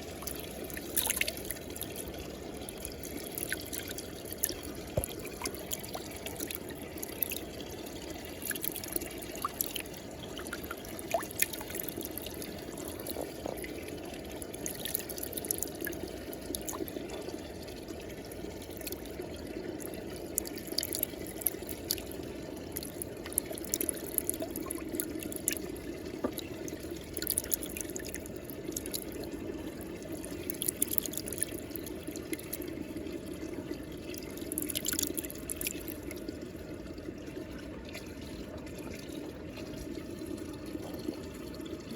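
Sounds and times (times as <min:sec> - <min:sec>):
water drips and splashes: 0:00.0 - 0:41.9
water swirling in a whirlpool: 0:00.0 - 0:41.9.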